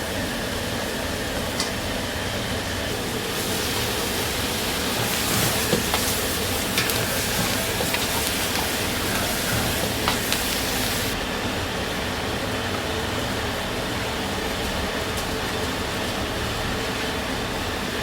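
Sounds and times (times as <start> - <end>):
kitchen burners and ventilation rushing: 0.0 - 18.0
food sizzling: 2.9 - 11.2.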